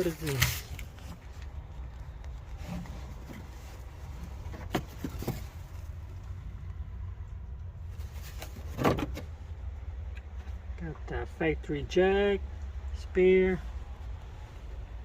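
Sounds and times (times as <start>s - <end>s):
items handled in car trunk: 0.0s - 6.4s, 7.8s - 11.1s.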